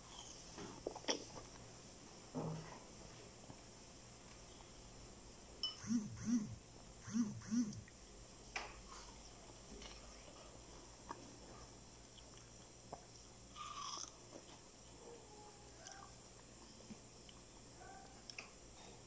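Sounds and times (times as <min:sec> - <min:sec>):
soft chewing of watermelon: 0:00.0 - 0:01.9, 0:08.7 - 0:15.0, 0:15.7 - 0:19.0.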